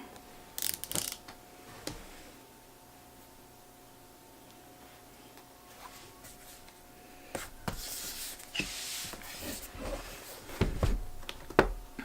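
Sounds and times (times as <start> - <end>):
rubbing and sliding: 7.4 - 10.6.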